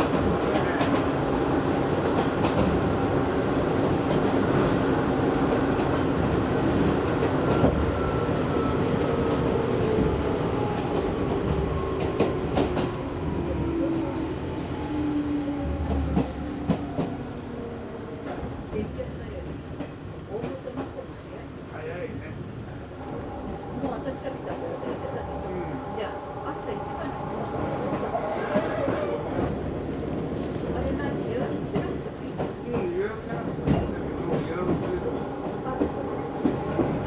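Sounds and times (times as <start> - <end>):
electric train running on track: 0.0 - 21.7, 22.4 - 37.0
rail joint clicks: 22.6 - 37.0.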